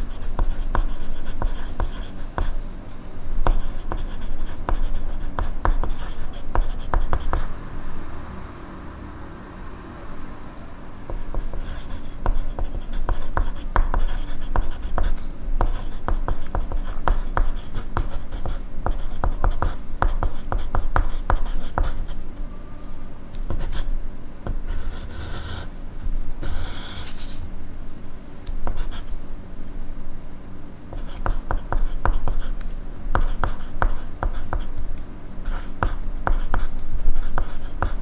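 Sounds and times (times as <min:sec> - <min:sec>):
pencil scratching on paper: 0:00.0 - 0:02.6, 0:03.4 - 0:07.5, 0:11.2 - 0:22.2, 0:24.7 - 0:25.7, 0:26.4 - 0:27.4.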